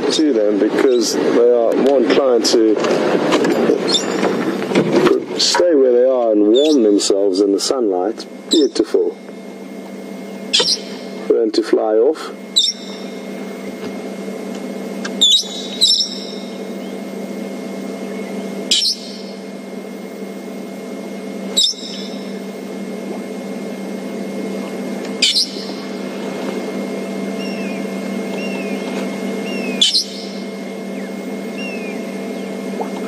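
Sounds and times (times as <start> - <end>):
parrot shrieking: 10.5 - 11.1, 12.6 - 13.0, 15.2 - 16.4, 18.7 - 19.3, 21.6 - 22.2, 25.2 - 25.8, 29.4 - 30.4.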